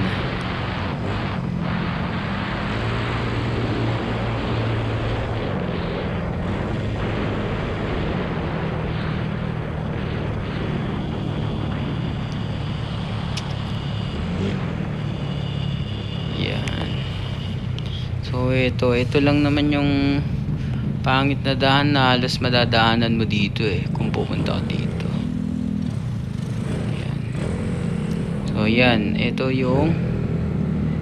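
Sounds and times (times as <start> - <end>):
wind and road noise: 0.0 - 31.0
scooter engine running: 25.3 - 28.5.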